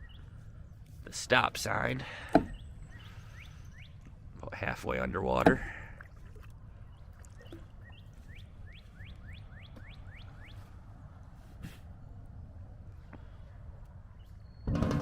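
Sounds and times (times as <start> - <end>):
songbird whistling notes: 2.5 - 4.0, 7.4 - 10.6.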